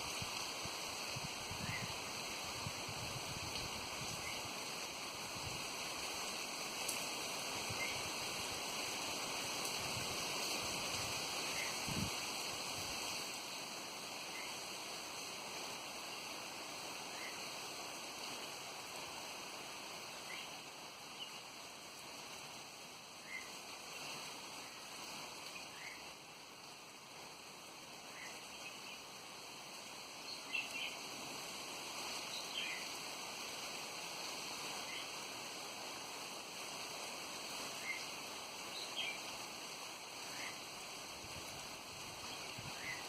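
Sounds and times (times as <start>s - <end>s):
small birds chirping: 30.3s - 31.1s.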